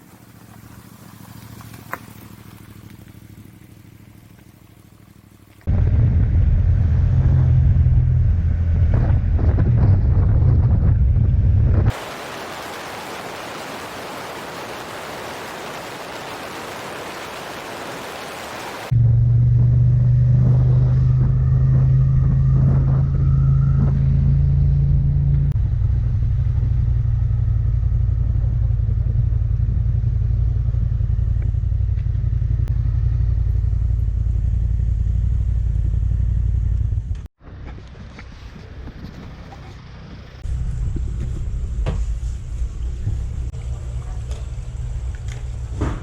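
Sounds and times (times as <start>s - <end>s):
motorcycle engine running: 0.0s - 10.2s, 25.3s - 41.8s
wind rushing over microphone: 5.7s - 18.9s.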